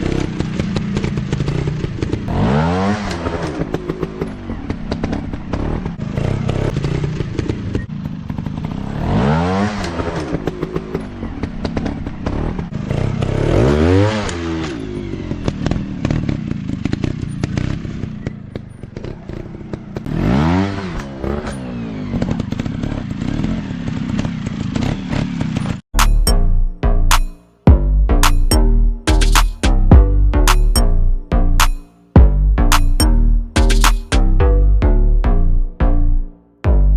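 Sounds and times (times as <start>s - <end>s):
dirt bike engine revving: 0.0s - 18.1s, 19.0s - 26.2s
music: 26.0s - 36.9s.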